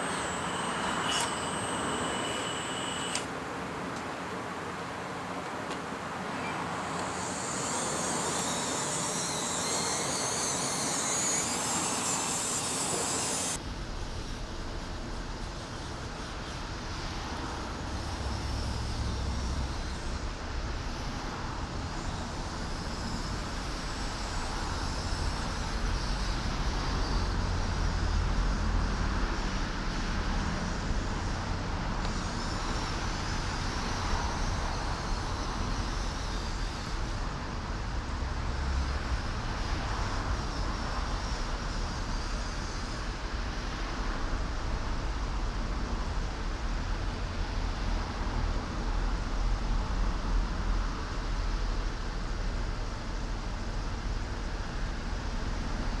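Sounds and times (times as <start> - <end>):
model machinery running: 0.0 - 13.6.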